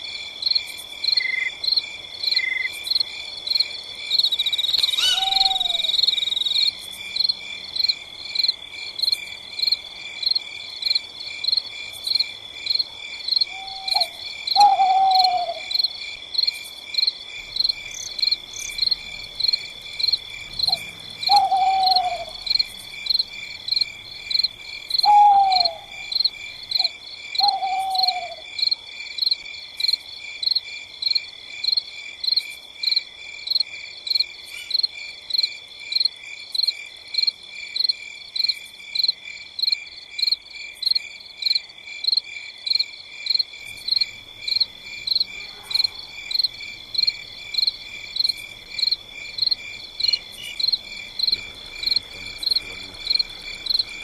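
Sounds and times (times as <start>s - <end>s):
crickets chirping: 0.0s - 54.0s
owl hooting: 5.0s - 6.0s, 13.5s - 15.8s, 20.7s - 22.4s, 25.0s - 26.1s, 26.8s - 28.4s.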